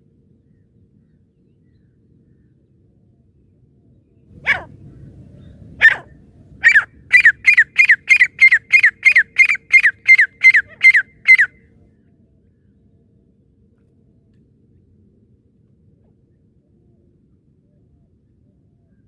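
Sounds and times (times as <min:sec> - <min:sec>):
francolin calling: 0:05.8 - 0:11.6.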